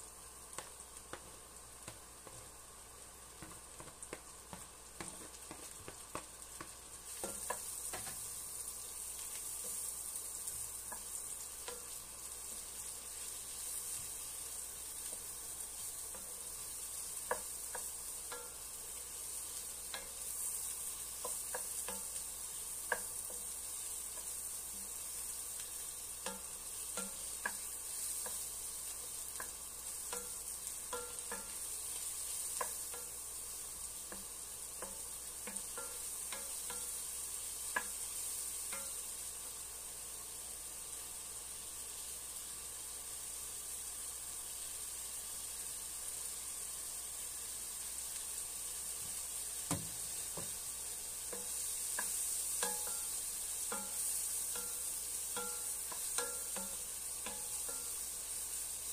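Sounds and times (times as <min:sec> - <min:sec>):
mushrooms sizzling in a pan: 0:00.0 - 0:58.9
wooden spatula scraping a pan: 0:03.4 - 0:08.2.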